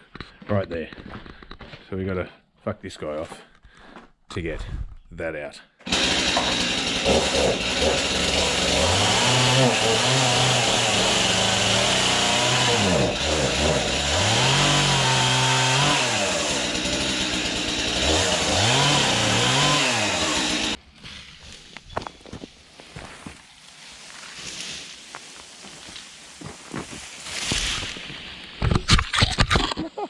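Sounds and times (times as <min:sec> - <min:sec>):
chainsaw revving: 0:05.9 - 0:20.8.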